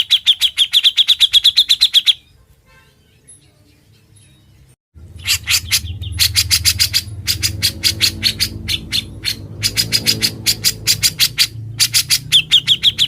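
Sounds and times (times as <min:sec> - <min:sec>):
steady low hum: 0:05.0 - 0:12.3
bird harsh chattering call: 0:05.0 - 0:13.0.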